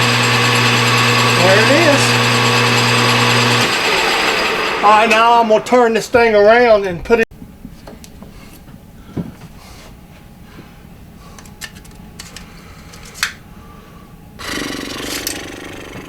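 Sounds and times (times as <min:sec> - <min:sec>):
lathe motor running: 0:00.0 - 0:05.9.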